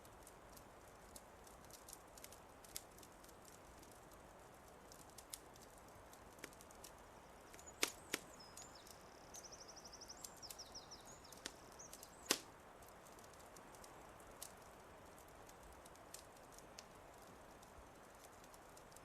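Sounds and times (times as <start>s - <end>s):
wood fire crackling: 0.0s - 19.0s
songbird chirping and trilling: 6.9s - 12.5s.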